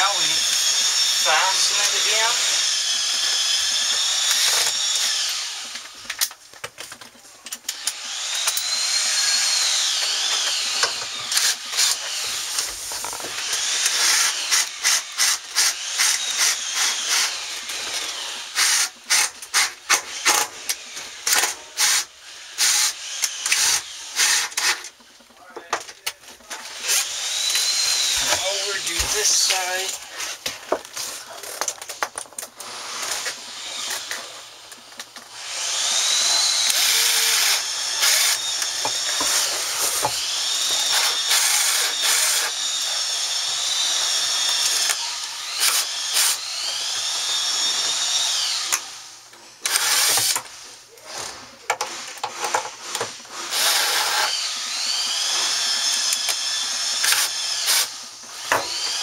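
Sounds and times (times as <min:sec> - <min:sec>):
screw gun motor whine: 0:00.0 - 0:06.4, 0:07.5 - 0:25.3, 0:26.6 - 0:30.4, 0:31.4 - 0:50.5, 0:51.1 - 0:59.0
screw gun clicks: 0:22.6 - 0:24.9, 0:44.4 - 0:46.9, 0:49.6 - 0:50.5, 0:55.8 - 0:59.0.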